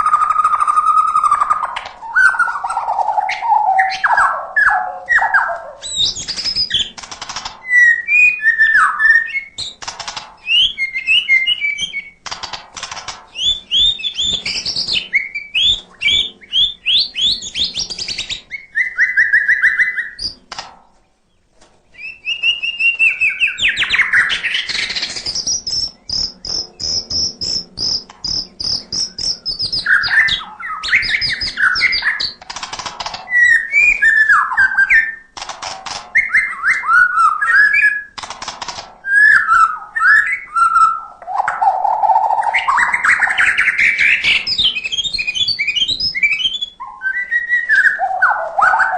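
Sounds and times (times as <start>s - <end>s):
songbird singing varied song: 0.0s - 7.0s, 7.6s - 12.3s, 13.3s - 20.5s, 21.3s - 32.5s, 33.2s - 35.3s, 36.1s - 38.2s, 39.0s - 48.9s.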